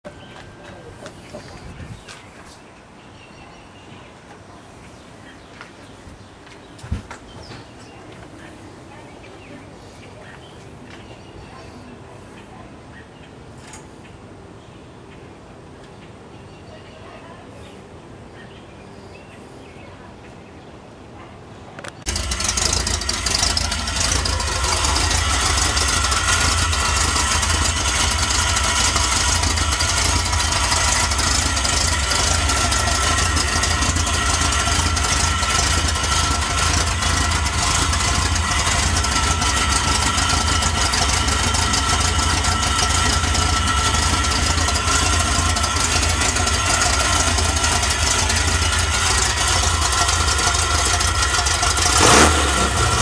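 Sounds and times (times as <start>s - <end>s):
car engine idling: 21.9s - 53.0s.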